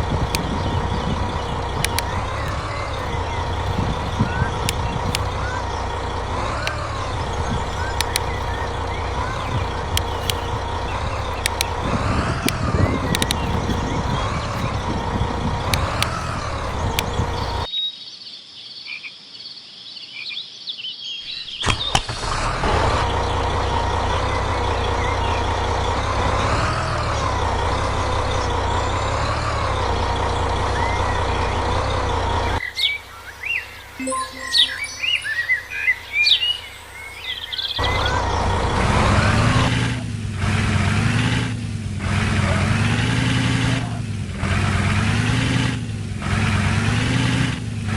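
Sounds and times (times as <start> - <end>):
birds chirping: 0.0 - 17.7, 32.2 - 38.4
truck engine droning: 0.0 - 17.7, 22.2 - 47.9
wavering higher tones: 34.0 - 37.0.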